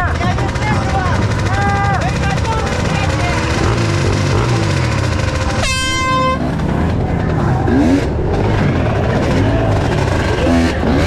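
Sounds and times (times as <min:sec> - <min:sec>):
motorcycle engines revving: 0:00.0 - 0:11.0
loud horn: 0:05.5 - 0:06.6.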